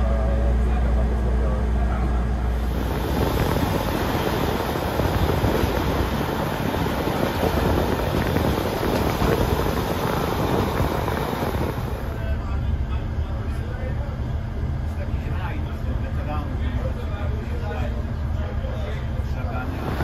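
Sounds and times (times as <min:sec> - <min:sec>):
flickering low rumble: 0:00.0 - 0:20.0
low cabin hum: 0:00.0 - 0:20.0
train rushing noise: 0:02.4 - 0:12.6, 0:19.2 - 0:20.0.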